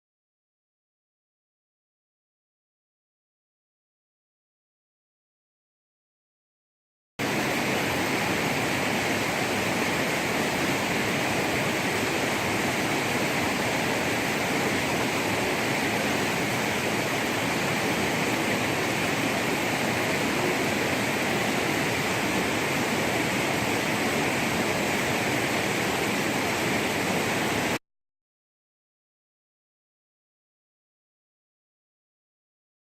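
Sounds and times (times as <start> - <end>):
running water rushing: 7.2 - 27.8.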